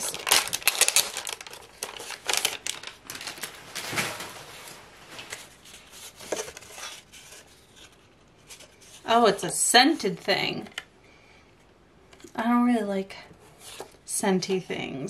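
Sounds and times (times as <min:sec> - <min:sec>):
packaging crackling: 0:00.0 - 0:07.9
wrapping rustling: 0:00.0 - 0:10.7.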